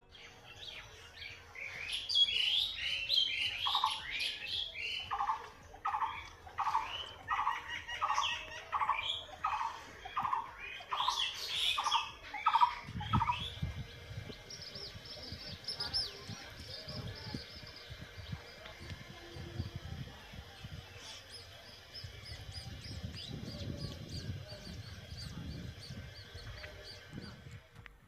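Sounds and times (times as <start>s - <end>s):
birds chirping: 0.0s - 27.7s.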